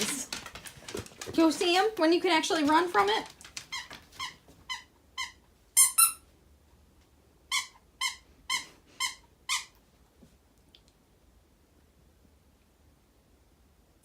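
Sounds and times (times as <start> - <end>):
squeaky toy squeaking: 3.7 - 6.3, 7.5 - 9.8.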